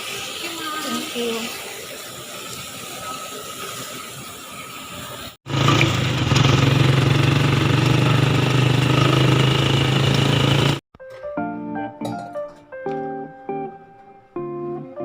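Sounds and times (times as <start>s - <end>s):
motor humming: 5.5s - 10.8s.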